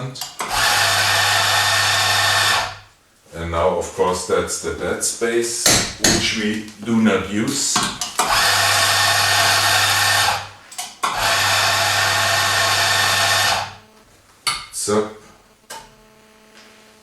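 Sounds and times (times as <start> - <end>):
coffee grinder grinding beans: 0.2 - 2.8, 8.1 - 13.9
short knocks: 5.6 - 6.5.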